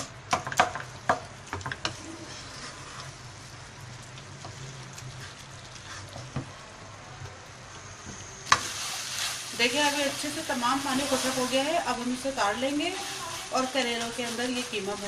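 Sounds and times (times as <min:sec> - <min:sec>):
minced meat sizzling in a pan: 0:08.4 - 0:15.0.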